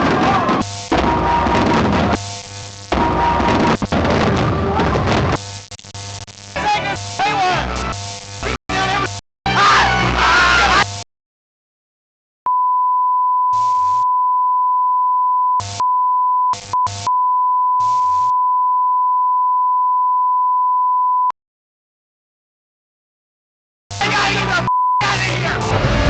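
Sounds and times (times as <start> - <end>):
high electronic beep tone: 24.6 - 25.0.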